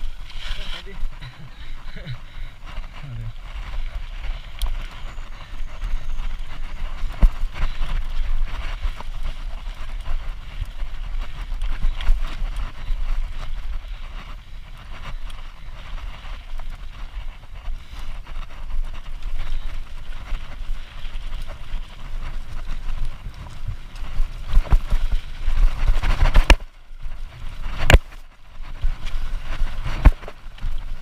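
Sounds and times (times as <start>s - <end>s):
mountain bike rolling on dirt: 0.0s - 31.0s
clicks and knocks from bike: 6.5s - 31.0s.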